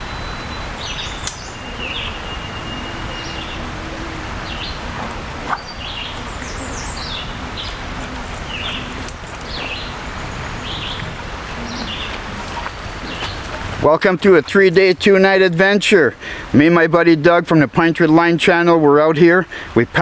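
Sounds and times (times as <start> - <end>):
small birds chirping: 0.0 - 13.8
steady rushing noise: 0.0 - 16.7.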